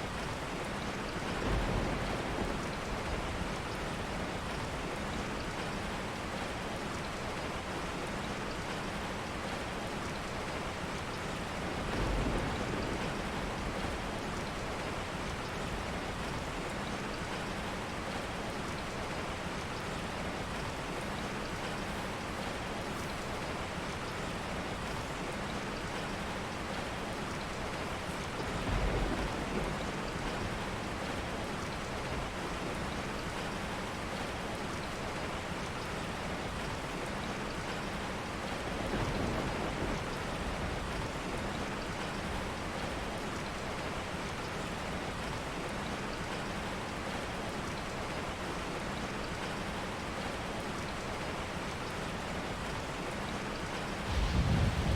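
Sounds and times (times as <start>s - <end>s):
steady rain hiss: 0.0s - 54.9s
low thumps: 54.1s - 54.9s.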